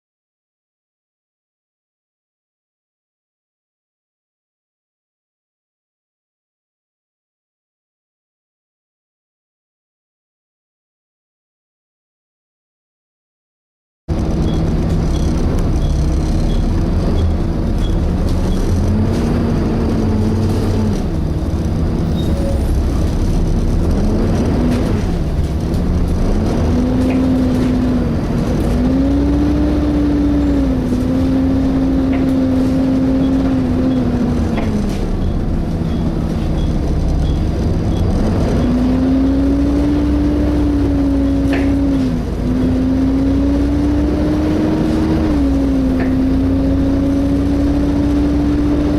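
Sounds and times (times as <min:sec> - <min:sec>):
bus engine rumble: 0:14.1 - 0:48.9.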